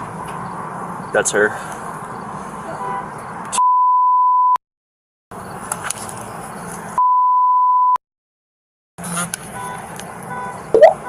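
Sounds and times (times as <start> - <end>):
outdoor background noise: 0.0 - 3.6, 5.3 - 7.0, 9.0 - 11.0
censor bleeps: 7.0 - 8.0, 10.8 - 11.0.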